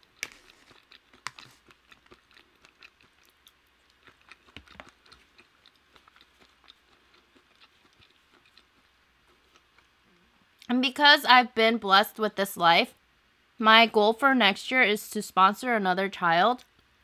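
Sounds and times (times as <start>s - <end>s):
chewing food with mouth clicks: 0.0s - 10.0s.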